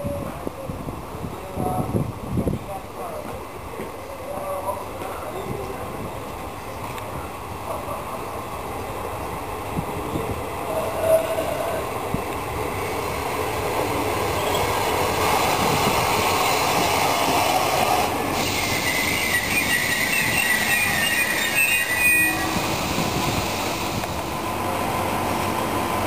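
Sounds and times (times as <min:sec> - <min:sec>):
train wheels rumbling on rail: 0:00.0 - 0:26.0
metallic wheel squeal: 0:18.6 - 0:22.8.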